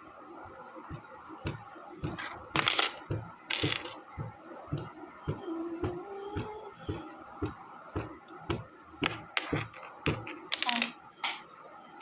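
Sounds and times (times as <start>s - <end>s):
small metal parts clinking: 2.5s - 4.0s.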